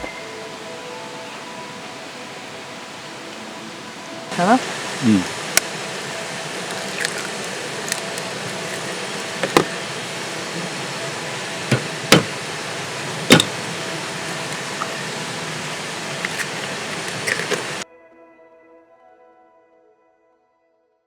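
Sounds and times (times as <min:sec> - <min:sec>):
steady background noise: 0:00.0 - 0:17.8
sharp knocks and clicks: 0:04.7 - 0:17.8.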